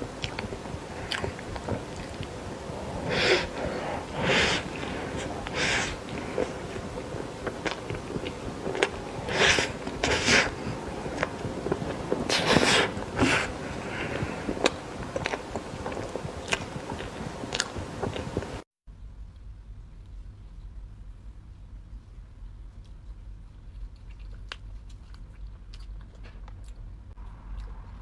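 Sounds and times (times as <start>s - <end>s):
lip smacking: 0.0s - 18.6s, 22.8s - 28.0s
person chewing: 0.0s - 18.6s, 22.8s - 28.0s
wet mouth clicks: 0.0s - 18.6s.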